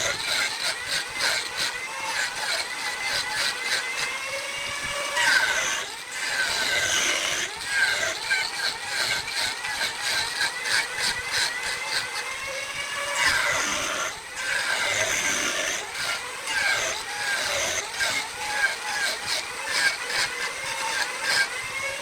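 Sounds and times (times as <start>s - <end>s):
wood lathe whining: 0.0s - 22.0s.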